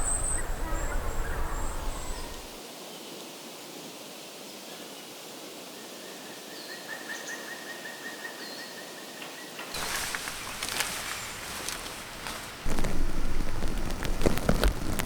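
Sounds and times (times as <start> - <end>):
birds chirping: 0.0 - 2.6, 9.8 - 15.0
rain with crackling drops: 0.0 - 2.6, 9.8 - 15.0
small birds trilling: 0.0 - 2.6, 9.8 - 15.0.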